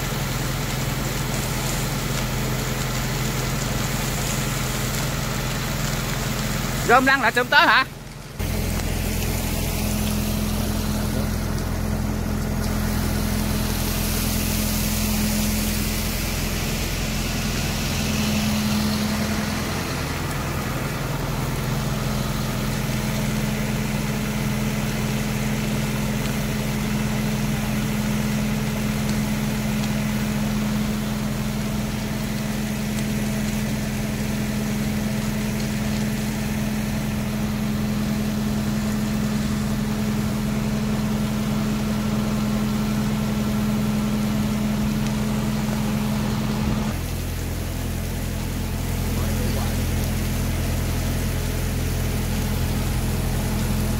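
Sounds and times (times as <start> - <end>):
fire engine motor running: 0.0 - 53.9.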